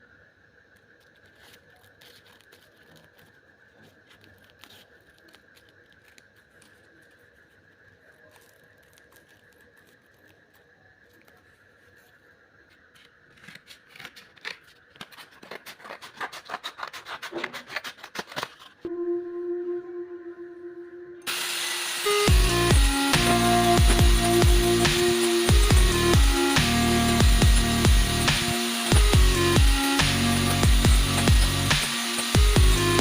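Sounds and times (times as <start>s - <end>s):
scissors snipping: 13.3s - 18.6s
faint high hum: 18.9s - 21.3s.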